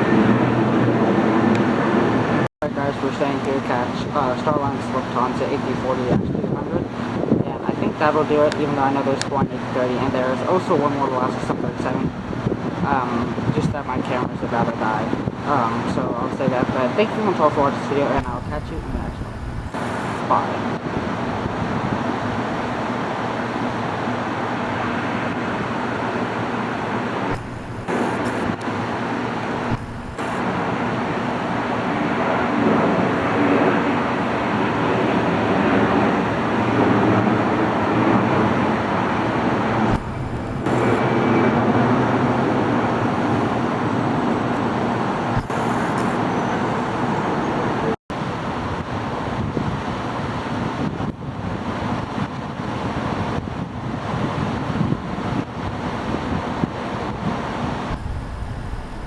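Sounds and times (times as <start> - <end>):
engine humming: 18.1 - 20.5, 26.0 - 31.6, 38.9 - 42.0, 57.8 - 59.0.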